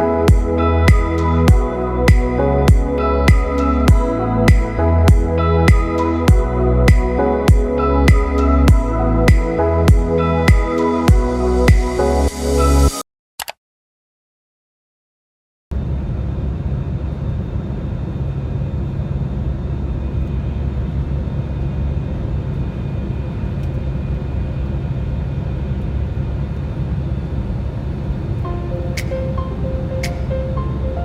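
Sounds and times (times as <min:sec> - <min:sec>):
steady low rumble: 0:00.0 - 0:12.3, 0:15.7 - 0:31.0
background music: 0:00.0 - 0:13.0, 0:28.4 - 0:31.0.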